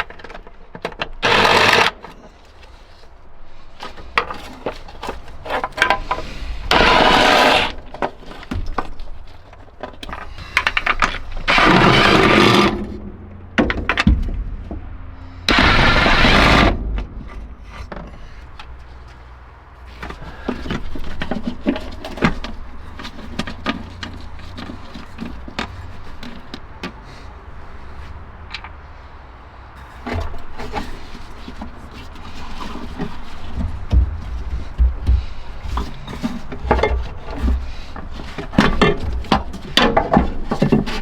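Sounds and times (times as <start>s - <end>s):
clicks and knocks: 13.4s - 19.3s.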